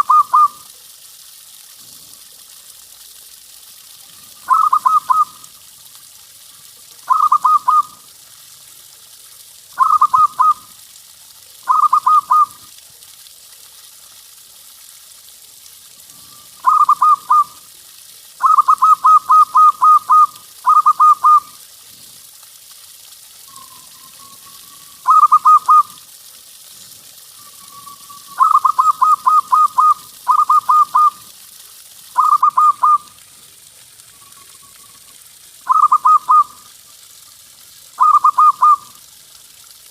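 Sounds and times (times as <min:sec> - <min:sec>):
dove cooing: 0:04.5 - 0:05.3, 0:07.1 - 0:08.0, 0:09.8 - 0:10.6, 0:11.7 - 0:12.6, 0:16.6 - 0:17.5, 0:18.4 - 0:21.5, 0:24.1 - 0:25.9, 0:27.6 - 0:31.2, 0:35.7 - 0:36.6, 0:38.0 - 0:38.8.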